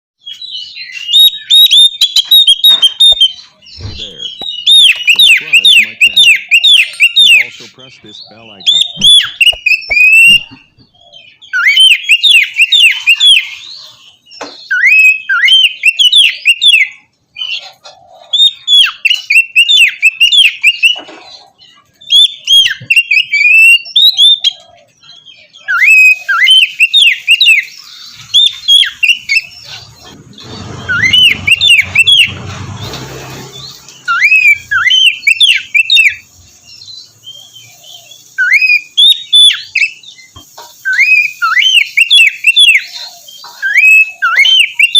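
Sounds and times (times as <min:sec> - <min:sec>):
bird singing whistled phrases: 0:00.2 - 0:17.6, 0:18.3 - 0:21.0, 0:22.0 - 0:29.7, 0:30.4 - 0:32.4, 0:34.0 - 0:44.9
rushing noise: 0:29.8 - 0:35.3.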